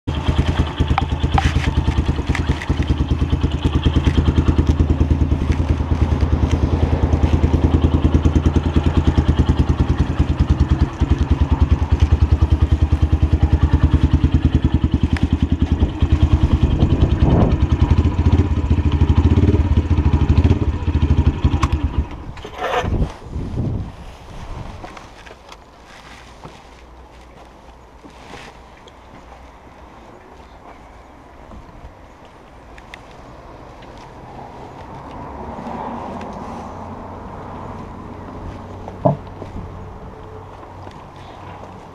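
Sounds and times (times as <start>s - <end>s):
motorcycle engine idling: 0.1s - 23.0s.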